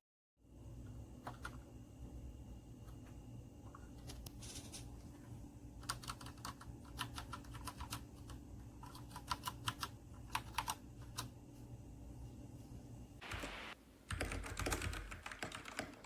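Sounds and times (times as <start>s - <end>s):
mechanical keyboard typing: 5.8s - 11.3s, 13.3s - 16.0s.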